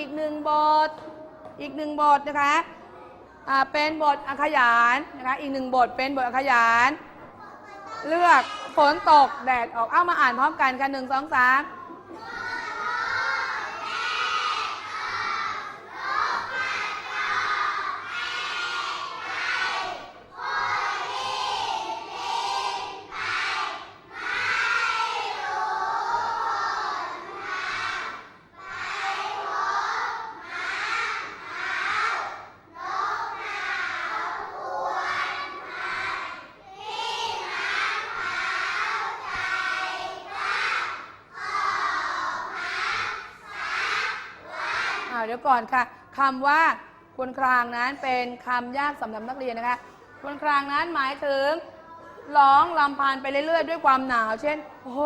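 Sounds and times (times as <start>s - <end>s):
children reciting in unison: 11.7s - 45.1s.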